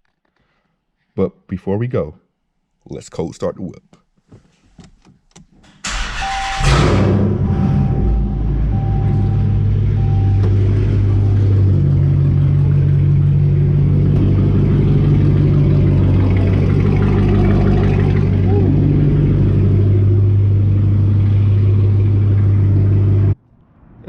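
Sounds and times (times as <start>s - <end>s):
car engine idling: 5.9s - 23.4s
short beeps: 7.4s - 11.5s.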